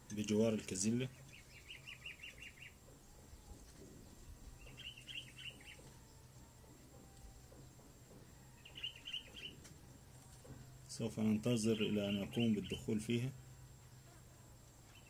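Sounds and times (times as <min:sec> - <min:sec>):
faint low hum: 0:00.0 - 0:15.0
bird chirping: 0:00.1 - 0:14.2, 0:14.8 - 0:15.0.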